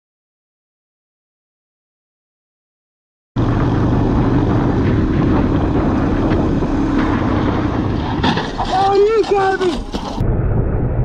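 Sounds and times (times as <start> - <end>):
low hum: 3.4 - 8.7, 9.7 - 11.0
vehicle rumble: 3.4 - 11.0
wind noise on microphone: 3.4 - 11.0.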